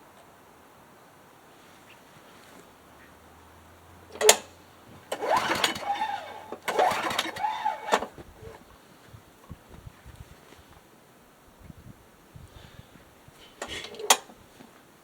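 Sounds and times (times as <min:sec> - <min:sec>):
engine turning over: 0:04.0 - 0:08.7
mower recoil starter pulls: 0:04.1 - 0:08.7, 0:13.6 - 0:14.3.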